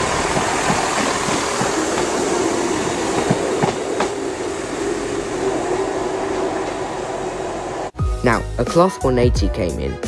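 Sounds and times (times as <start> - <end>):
diesel train engines droning: 0.0 - 8.6
wheel clicks over rail joints: 2.8 - 4.2.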